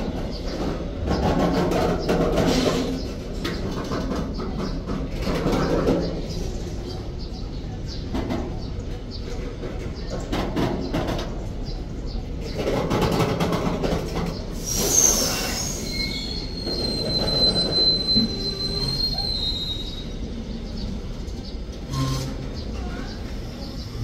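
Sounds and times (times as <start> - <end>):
wheels clacking over rail joints: 0.0 - 23.9
freight train rumble: 0.0 - 24.0
high squeal: 14.6 - 20.5, 21.8 - 24.0.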